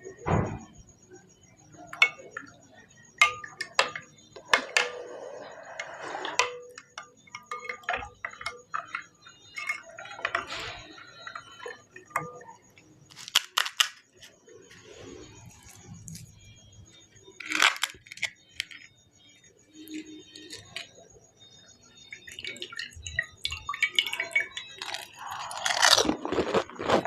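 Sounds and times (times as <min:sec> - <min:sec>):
utensils clinking on steel dishes: 0:01.9 - 0:02.6, 0:03.2 - 0:05.1, 0:05.8 - 0:12.6, 0:22.2 - 0:26.8
crisp shells crackling: 0:24.0 - 0:27.0.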